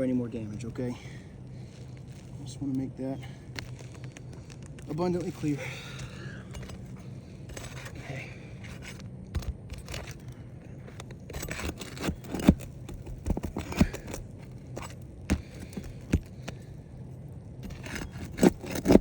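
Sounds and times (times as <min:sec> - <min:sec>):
pry tool scraping under shingles: 0:03.2 - 0:17.0, 0:17.6 - 0:19.0.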